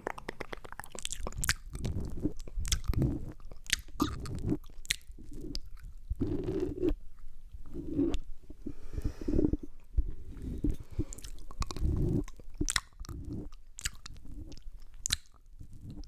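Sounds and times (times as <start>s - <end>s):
muffled mouth smacks: 0.0s - 6.5s, 14.8s - 16.0s
wet mouth clicks: 0.0s - 8.3s, 10.6s - 16.0s.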